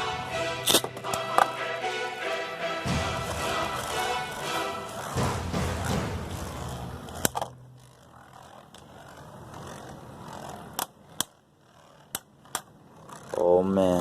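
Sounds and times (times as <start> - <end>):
spinning tops clicking: 0.0 - 1.8
spinning tops whirring and scraping: 0.0 - 14.0.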